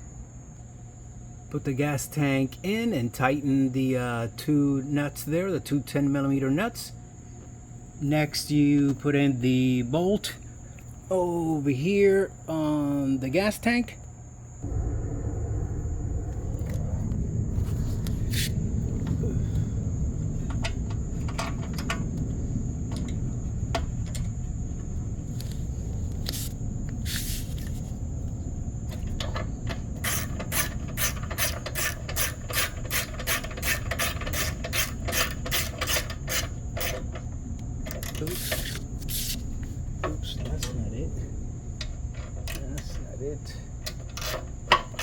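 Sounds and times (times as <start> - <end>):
steady low rumble: 0.0 - 33.0, 36.2 - 44.7
socket wrench ratchet clicking: 30.0 - 37.1.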